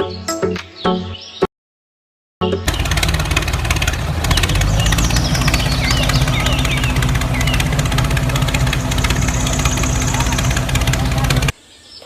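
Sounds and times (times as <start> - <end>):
birds chirping: 2.4 - 12.0
small engine chugging: 2.6 - 11.5.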